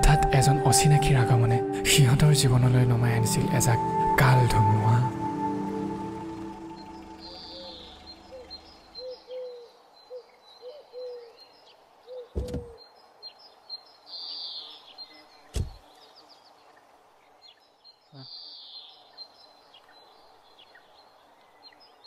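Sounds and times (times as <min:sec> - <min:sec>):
background music: 0:00.0 - 0:09.1
birds chirping and calling: 0:00.0 - 0:16.2
car door thuds: 0:12.4 - 0:12.7.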